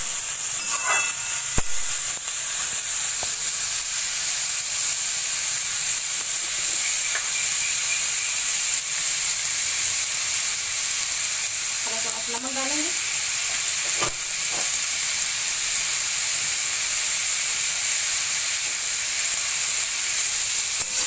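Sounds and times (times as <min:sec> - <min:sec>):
vegetables sizzling in oil: 0:00.0 - 0:21.0
spatula scraping and knocking pan: 0:00.6 - 0:01.6.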